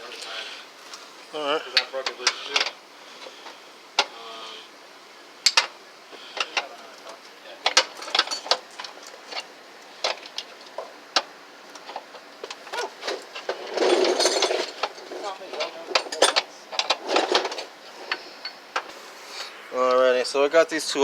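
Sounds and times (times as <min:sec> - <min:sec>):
scraping rustle: 0:06.2 - 0:19.9.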